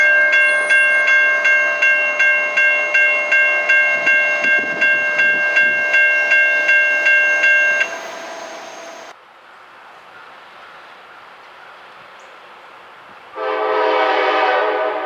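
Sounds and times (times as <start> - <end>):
railroad crossing bell ringing: 0.0 - 9.1.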